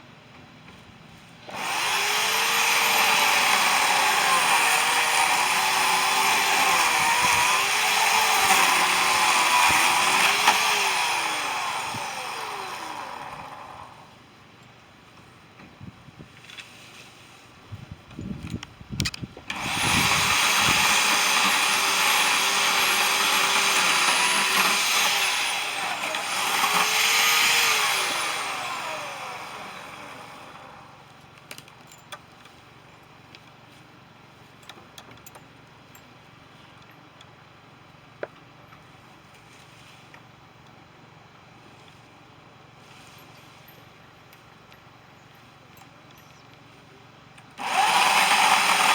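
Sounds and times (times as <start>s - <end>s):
chainsaw running: 1.5s - 14.2s, 19.5s - 31.0s, 47.5s - 48.9s.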